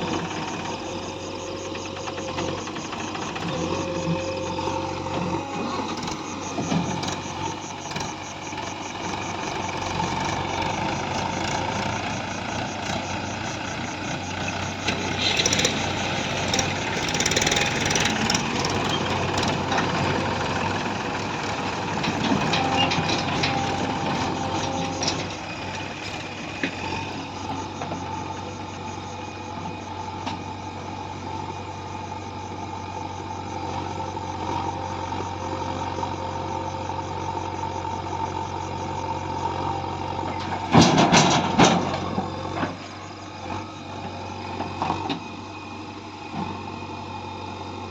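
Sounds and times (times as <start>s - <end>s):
heavy machinery diesel engine: 0.0s - 47.9s.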